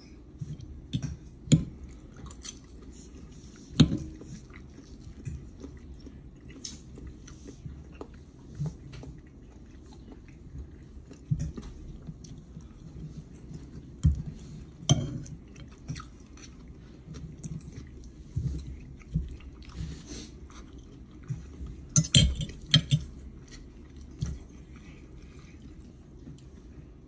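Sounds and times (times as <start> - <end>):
person chewing food: 0.1 - 27.0.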